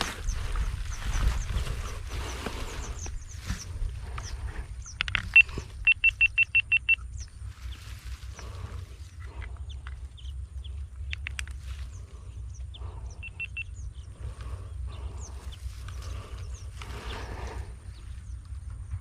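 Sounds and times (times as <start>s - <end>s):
birds chirping: 0.0s - 19.0s
low rumble: 0.0s - 19.0s
sharp clicks: 4.2s - 7.4s, 11.0s - 11.7s
short beeps: 5.3s - 7.2s, 13.2s - 13.8s.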